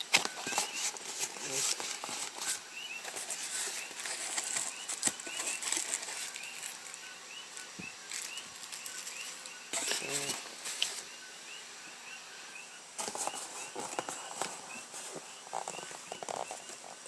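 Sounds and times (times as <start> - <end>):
small bird chirping: 0.0 - 17.0
clicks and rustling from handling: 0.1 - 7.0, 7.6 - 11.0.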